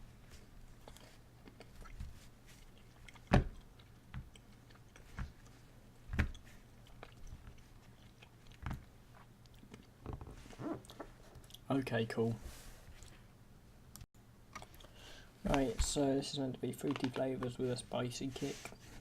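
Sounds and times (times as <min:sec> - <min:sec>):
person chewing candy: 0:00.8 - 0:05.6, 0:06.3 - 0:10.0.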